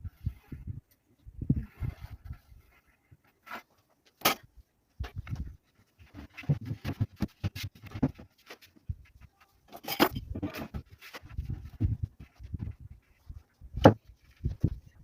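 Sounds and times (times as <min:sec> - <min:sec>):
objects knocking and clattering: 0:05.0 - 0:08.8, 0:09.7 - 0:12.9.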